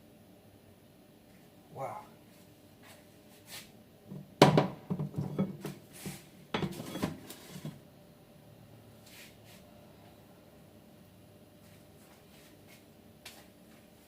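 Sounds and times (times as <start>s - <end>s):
utensil scraping a frying pan: 5.2s - 7.8s.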